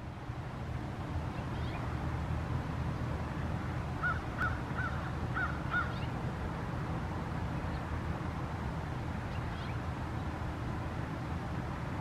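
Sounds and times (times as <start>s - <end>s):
low steady rumble: 0.0s - 12.0s
bird calling: 1.3s - 1.9s, 4.0s - 6.2s, 9.3s - 9.8s.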